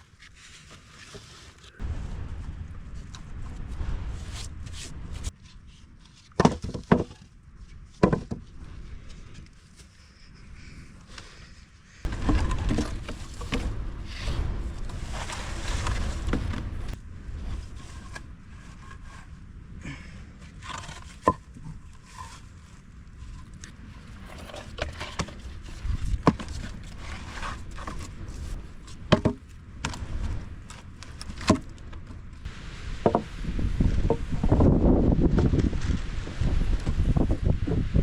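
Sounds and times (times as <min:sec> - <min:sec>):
sharp knocks and scrapes: 0:00.2 - 0:07.3, 0:07.9 - 0:10.1, 0:12.0 - 0:19.4, 0:20.5 - 0:32.3, 0:33.0 - 0:34.6
gusty wind: 0:01.7 - 0:06.0, 0:07.4 - 0:09.6, 0:10.3 - 0:38.0
low background rumble: 0:01.7 - 0:06.2, 0:07.2 - 0:38.0.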